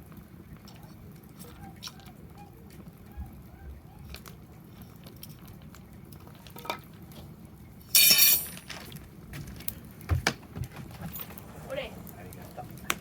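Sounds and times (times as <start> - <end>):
metallic clink and clatter: 8.0 - 8.8.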